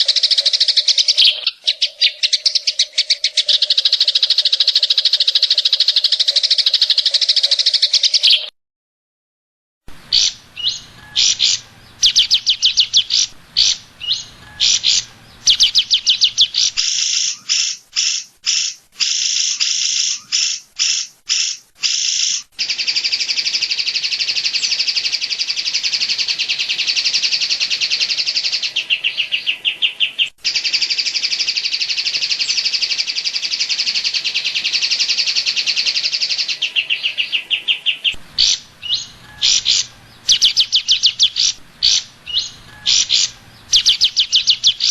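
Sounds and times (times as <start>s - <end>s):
bird singing rapid chattering: 0.0s - 8.5s, 10.0s - 44.9s.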